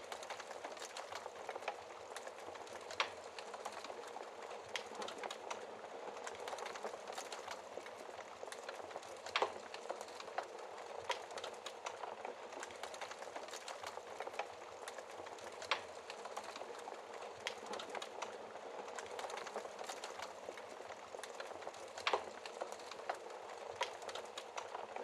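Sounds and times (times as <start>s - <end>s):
sharp pops and snaps of fire: 0.0s - 25.0s
wood fire crackling: 0.0s - 25.0s.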